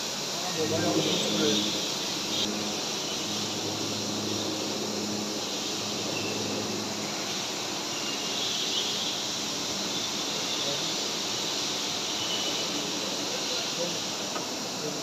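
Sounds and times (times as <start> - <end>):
faint high whine: 0.0 - 14.3
low hum: 0.4 - 7.9.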